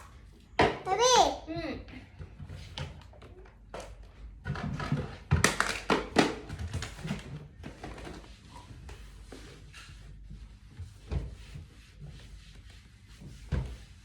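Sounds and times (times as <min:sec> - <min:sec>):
objects knocking and clattering: 0:02.3 - 0:08.2.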